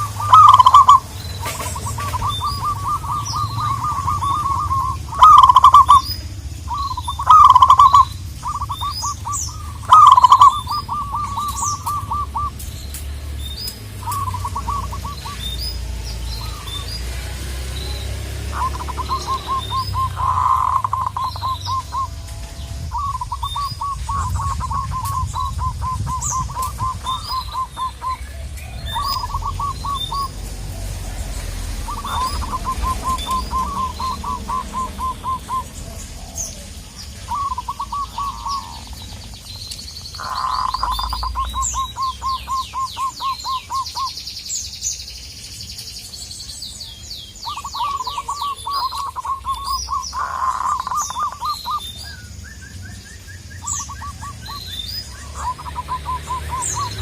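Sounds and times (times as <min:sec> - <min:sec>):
dove cooing song: 0:00.0 - 0:44.2, 0:46.8 - 0:57.0
high descending bird notes: 0:00.0 - 0:44.2
small birds chirping: 0:00.0 - 0:57.0.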